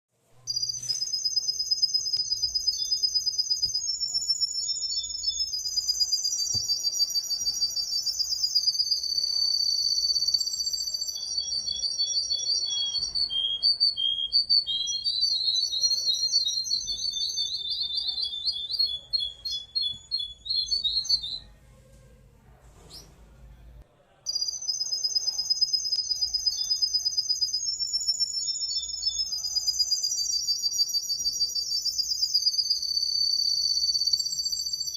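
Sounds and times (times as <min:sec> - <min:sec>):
songbird high-pitched trill: 0:00.5 - 0:21.4, 0:24.3 - 0:34.9.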